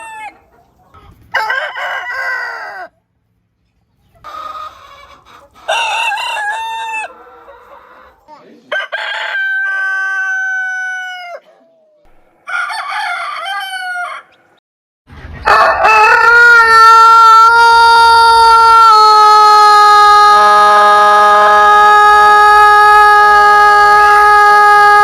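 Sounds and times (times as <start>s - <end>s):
rooster crowing: 0.0s - 0.4s, 1.3s - 3.0s, 5.7s - 8.1s, 8.7s - 11.5s, 12.4s - 14.4s, 15.4s - 25.0s.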